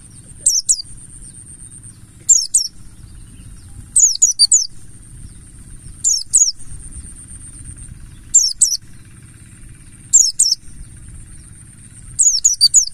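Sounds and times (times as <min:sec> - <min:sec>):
thin steady high tone: 0:00.0 - 0:09.0
bird singing high whistles: 0:00.0 - 0:09.1, 0:09.8 - 0:12.9
low rumble: 0:00.0 - 0:12.9.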